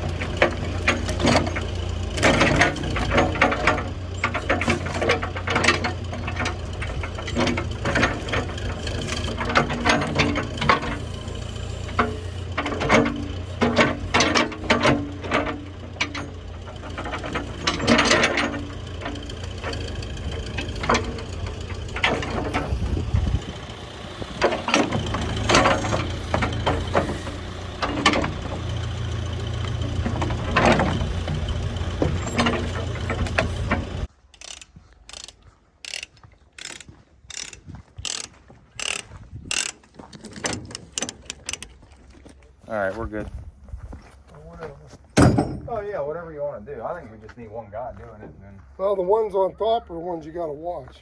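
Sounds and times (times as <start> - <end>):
sharp knocks and clanks: 0.0 - 42.4, 45.1 - 45.9
engine running: 0.0 - 45.4
evenly spaced clicks: 34.3 - 42.0.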